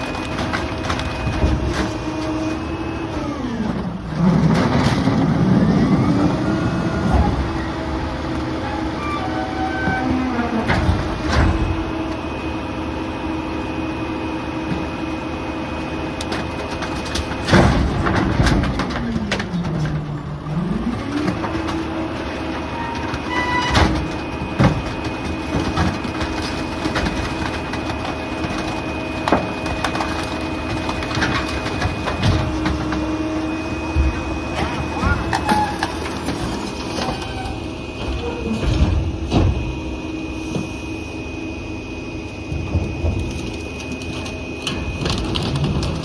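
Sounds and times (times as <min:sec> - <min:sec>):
debris knocks and bangs: 0:00.0 - 0:02.6, 0:09.6 - 0:12.0, 0:16.3 - 0:40.7, 0:42.4 - 0:46.0
garbage truck whine: 0:00.0 - 0:46.0.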